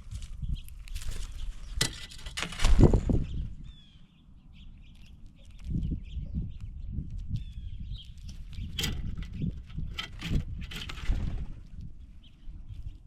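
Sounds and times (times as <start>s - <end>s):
faint bird chirps: 3.1s - 8.8s.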